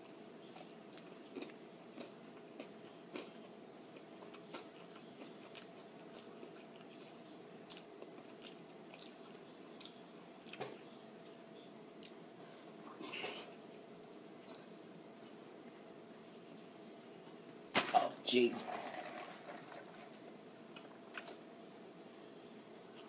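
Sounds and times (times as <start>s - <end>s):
faint steady hum: 0.0s - 23.0s
person chewing: 0.5s - 12.2s, 12.8s - 15.6s, 20.7s - 21.4s.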